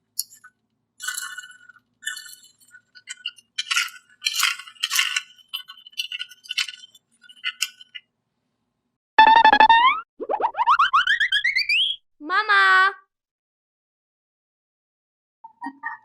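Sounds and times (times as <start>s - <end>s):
small hard objects clinking: 0.2s - 8.0s
cartoon sound effect rising: 9.2s - 12.0s.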